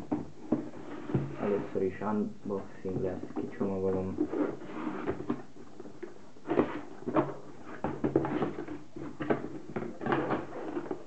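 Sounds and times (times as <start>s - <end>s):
packaging knocks and rustles: 2.9s - 11.0s.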